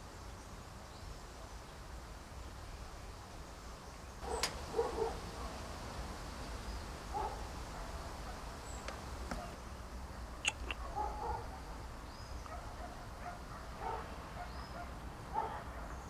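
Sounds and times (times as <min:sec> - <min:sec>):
sharp clicks: 0:10.4 - 0:10.8.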